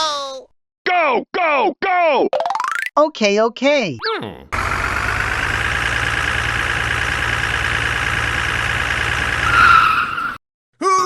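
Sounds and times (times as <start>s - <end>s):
vehicle engine running: 4.6s - 9.6s.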